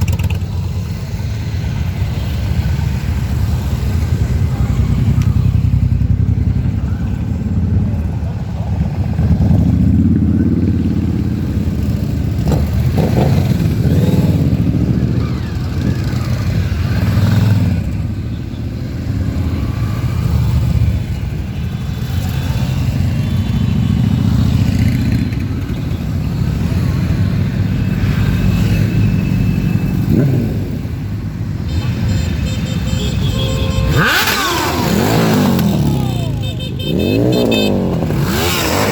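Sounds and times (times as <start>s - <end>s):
motorcycle engine revving: 0.0s - 1.0s, 9.0s - 18.1s, 22.0s - 38.9s
motorcycles riding past: 0.0s - 38.9s.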